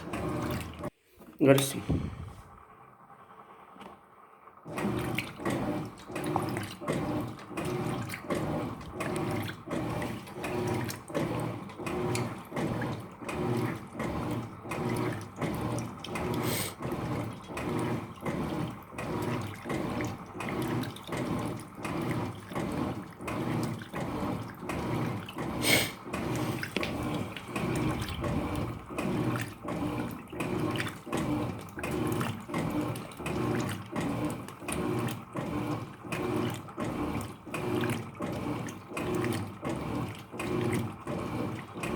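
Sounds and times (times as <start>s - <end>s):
washing machine water sloshing: 0.0s - 2.7s, 4.6s - 41.9s.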